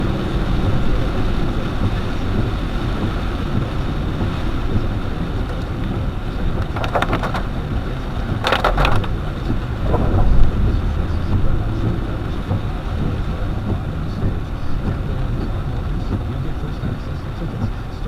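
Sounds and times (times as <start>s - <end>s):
engine and tyres on wet road: 0.0s - 18.0s
rain and wind hiss: 0.0s - 18.0s
rattling clicks: 6.6s - 7.5s, 8.4s - 9.2s.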